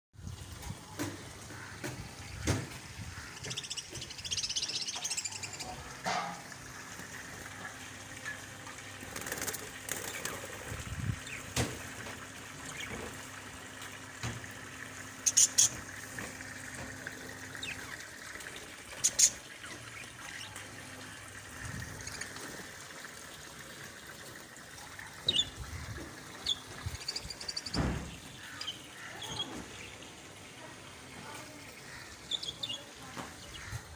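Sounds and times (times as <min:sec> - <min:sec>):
outdoor background noise: 0:00.2 - 0:33.9
birds chirping: 0:00.8 - 0:06.4, 0:15.2 - 0:15.9, 0:17.3 - 0:21.2, 0:25.0 - 0:33.9.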